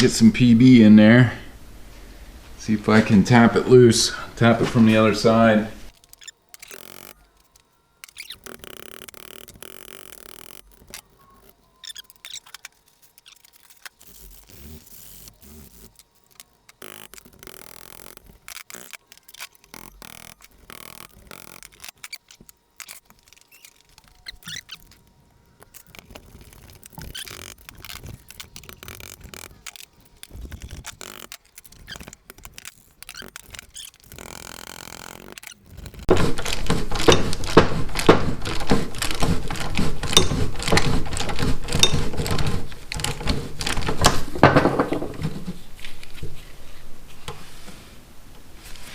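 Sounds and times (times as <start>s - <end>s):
hand tools tapping and scraping: 5.9s - 43.4s.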